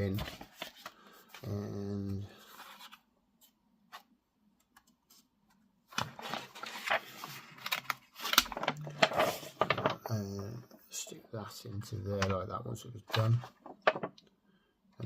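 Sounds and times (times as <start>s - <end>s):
plastic parts clicking and scraping: 13.1s - 14.3s.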